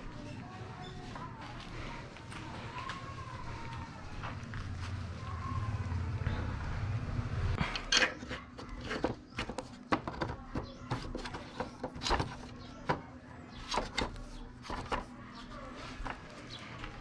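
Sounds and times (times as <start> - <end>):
low rumble: 4.4 - 7.6.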